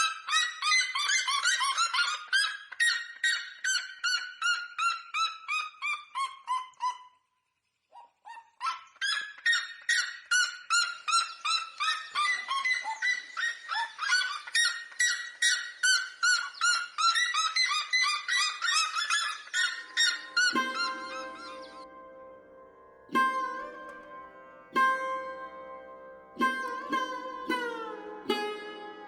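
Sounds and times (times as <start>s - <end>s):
bird yelping calls: 7.9s - 21.9s.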